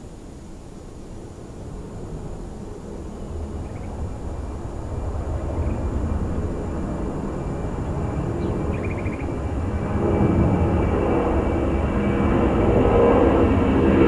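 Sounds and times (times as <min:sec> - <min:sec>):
jet engines rumbling: 0:02.8 - 0:14.0.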